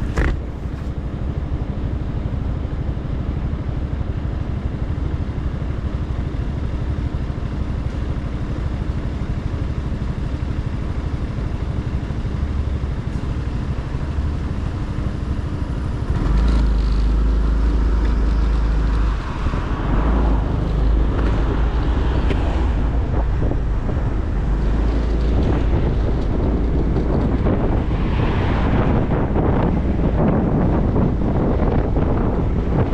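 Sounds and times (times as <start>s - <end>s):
wind rushing over microphone: 0.0s - 1.3s, 13.4s - 32.9s
motorcycle engine running: 0.0s - 28.0s.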